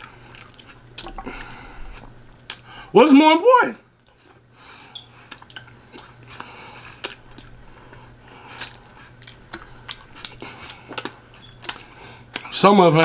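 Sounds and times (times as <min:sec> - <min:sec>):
wet mouth clicks from chewing: 0:00.0 - 0:01.5, 0:05.3 - 0:12.5
faint low hum: 0:00.0 - 0:13.0.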